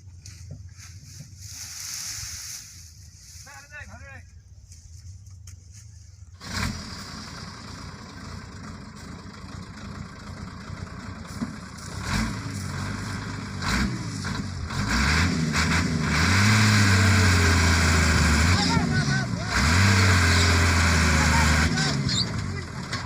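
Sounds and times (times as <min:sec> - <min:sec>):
truck engine revving: 0:06.3 - 0:23.0.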